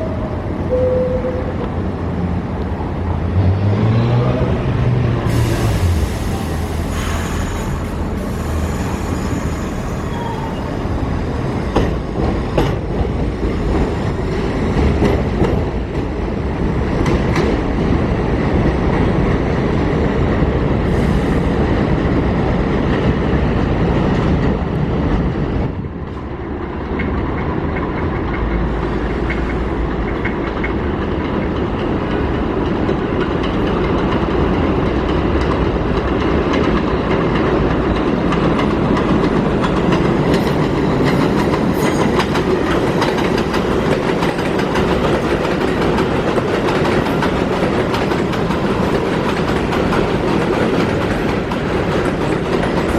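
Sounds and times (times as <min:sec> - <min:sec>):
train wheels rumbling on steel: 0:01.6 - 0:52.9
wheels clacking over rail joints: 0:09.7 - 0:19.4, 0:22.7 - 0:52.9.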